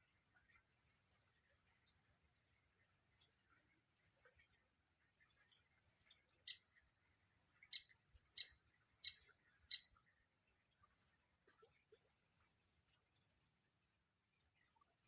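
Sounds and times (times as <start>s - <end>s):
small bird chirps: 5.1s - 6.8s, 7.6s - 10.0s.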